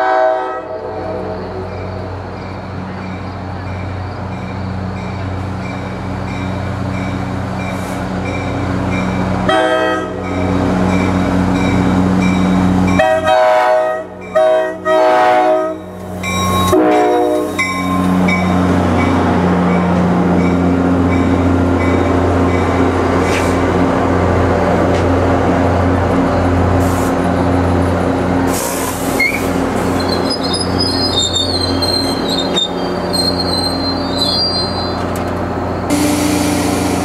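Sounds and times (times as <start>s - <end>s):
train air horn blasts: 0.0s - 1.4s, 9.5s - 10.3s, 13.0s - 18.1s, 35.9s - 37.0s
diesel train engine droning: 0.0s - 37.0s.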